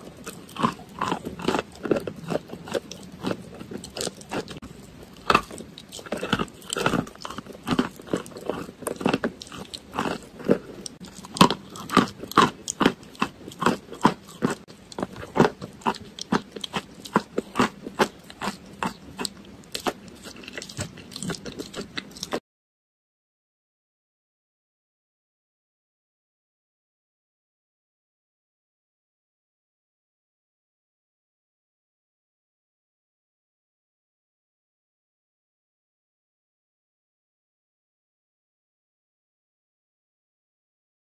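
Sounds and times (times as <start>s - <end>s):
crunchy chewing and biting: 0.0s - 22.4s.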